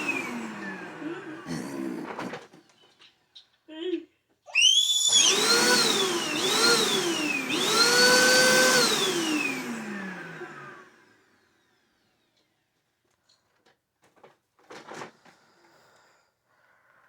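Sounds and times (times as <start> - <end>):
vacuum cleaner motor whining: 0.0 - 2.5, 4.5 - 12.6.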